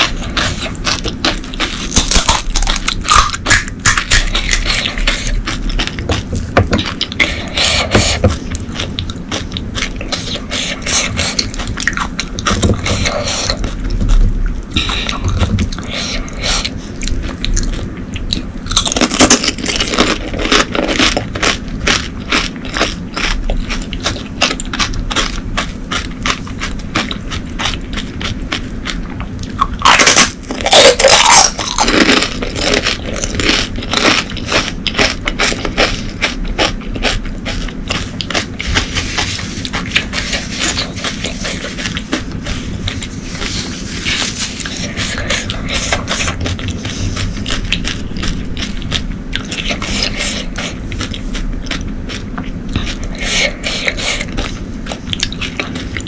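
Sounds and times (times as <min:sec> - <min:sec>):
crunchy food chewing: 0:00.0 - 0:56.0.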